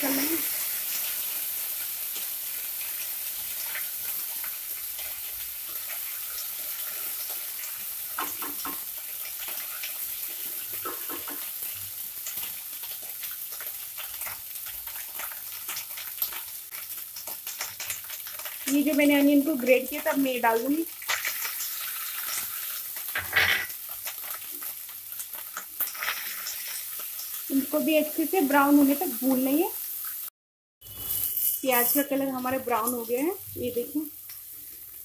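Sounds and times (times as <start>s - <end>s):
paste sizzling in hot oil: 0.0s - 35.0s
spatula scraping and tapping pan: 8.1s - 8.9s, 10.7s - 11.5s.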